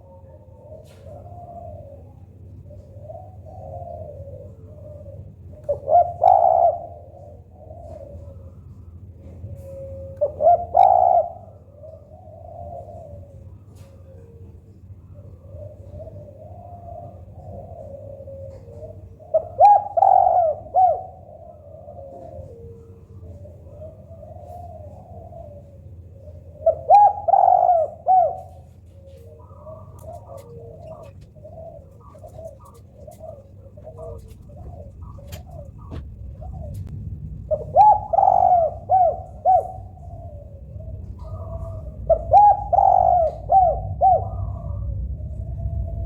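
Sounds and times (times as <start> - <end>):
doves cooing: 0.0 - 46.0
low rumble: 27.9 - 46.0.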